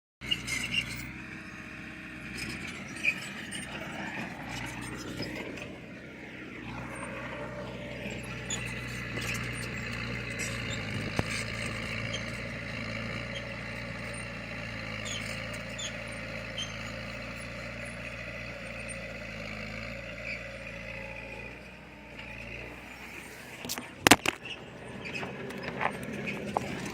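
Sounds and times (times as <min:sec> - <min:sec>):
bulldozer diesel engine: 0:00.2 - 0:26.9.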